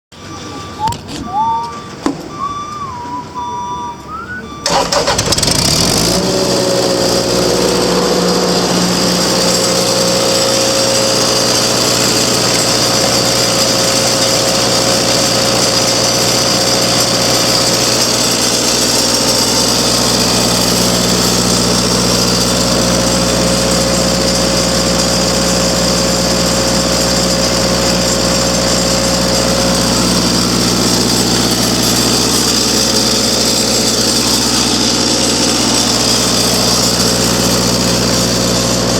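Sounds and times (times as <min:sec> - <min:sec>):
engine cranking and running: 0:00.1 - 0:38.9.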